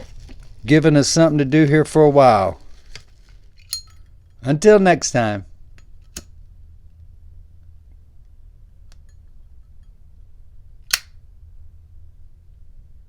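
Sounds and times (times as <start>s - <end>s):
steady low hum: 0.0s - 13.0s
sharp click: 10.9s - 11.2s.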